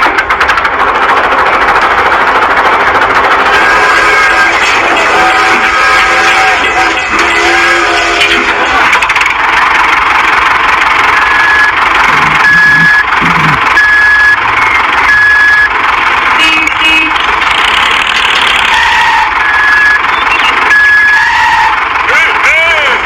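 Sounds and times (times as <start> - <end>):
small vehicle motor running: 0.0 - 22.9
high-pitched electronic beeps: 11.1 - 15.7, 19.4 - 21.2.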